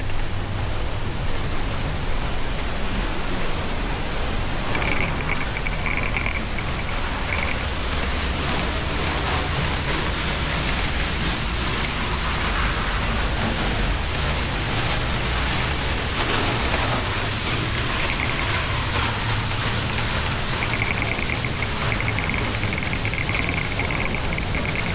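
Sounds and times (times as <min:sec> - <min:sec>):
faint high chirps: 0:04.6 - 0:12.5, 0:16.5 - 0:24.9.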